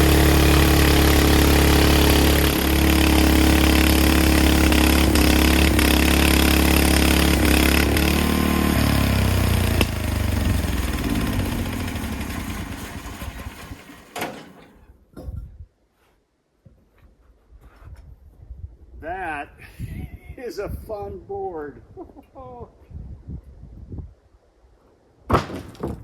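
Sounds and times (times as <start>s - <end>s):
band sawmill running: 0.0s - 14.6s.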